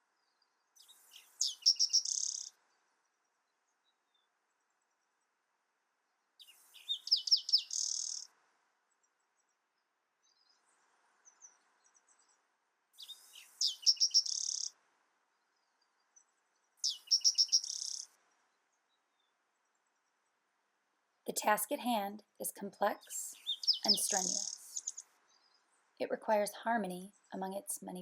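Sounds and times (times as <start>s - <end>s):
faint bird chirps: 0.0s - 5.2s, 6.4s - 8.3s, 10.2s - 20.2s, 22.6s - 28.0s
songbird singing with buzzy trill: 0.2s - 3.2s, 6.4s - 8.3s, 13.0s - 14.7s, 15.6s - 18.1s, 22.6s - 25.7s.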